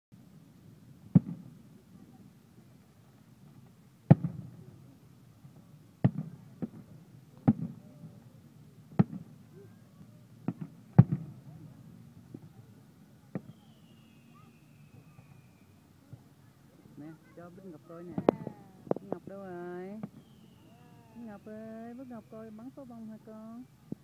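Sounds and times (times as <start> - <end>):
fireworks bangs: 4.1 - 4.7, 6.0 - 7.9, 10.4 - 11.5, 13.3 - 15.4
falling whistle: 13.4 - 15.8, 20.1 - 22.5.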